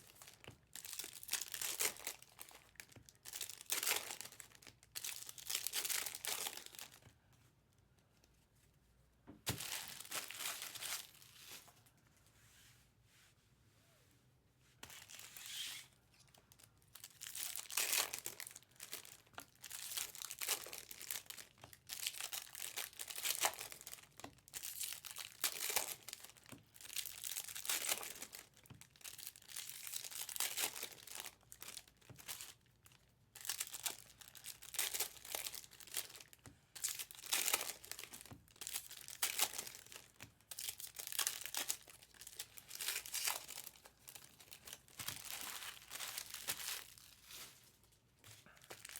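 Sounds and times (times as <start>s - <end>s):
foil wrappers tearing and crinkling: 0.0s - 7.0s, 9.5s - 11.4s, 16.9s - 32.6s, 33.4s - 47.6s.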